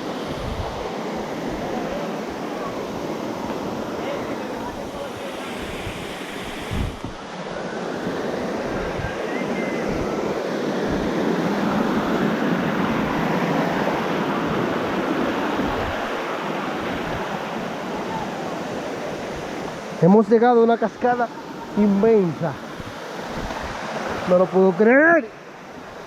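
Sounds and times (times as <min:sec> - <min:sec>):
waterfall rushing: 0:00.0 - 0:12.1
wind buffeting microphone: 0:00.0 - 0:18.5.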